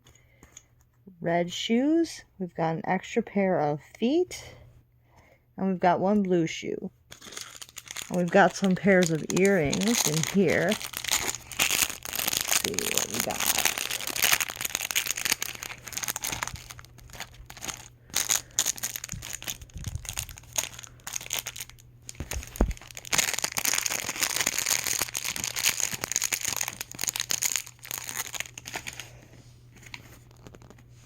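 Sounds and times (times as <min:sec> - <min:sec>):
packaging crinkling: 0:07.1 - 0:30.9.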